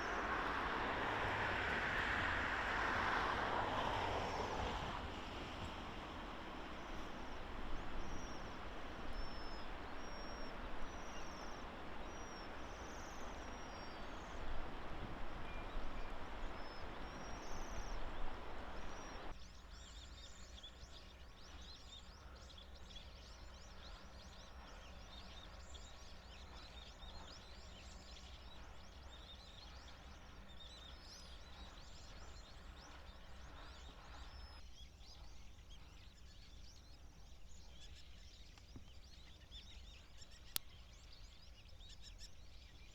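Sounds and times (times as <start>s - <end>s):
background hiss: 0.0s - 19.3s
waxwings trilling calls: 4.8s - 19.3s.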